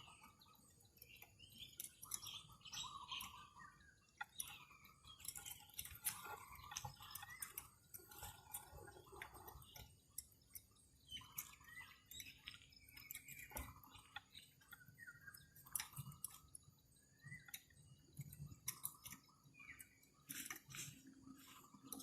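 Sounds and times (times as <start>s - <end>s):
faint bird chirps: 0.0s - 22.0s
small clicks: 0.0s - 22.0s.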